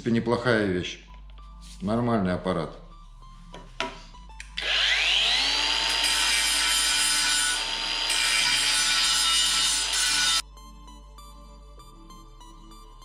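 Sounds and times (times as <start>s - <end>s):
cordless angle grinder whine: 4.6s - 10.4s.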